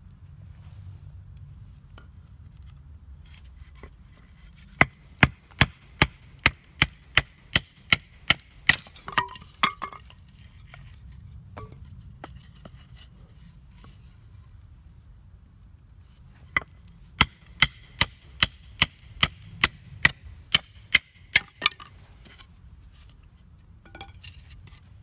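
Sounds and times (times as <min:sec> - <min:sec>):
firewood being chopped: 0:04.8 - 0:10.1, 0:16.6 - 0:21.9.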